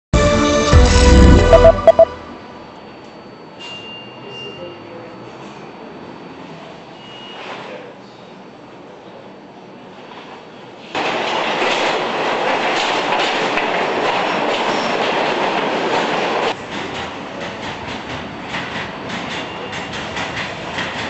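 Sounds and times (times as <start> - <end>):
subway train on rails: 0.2 - 21.0
wheels clacking on rails: 10.8 - 21.0.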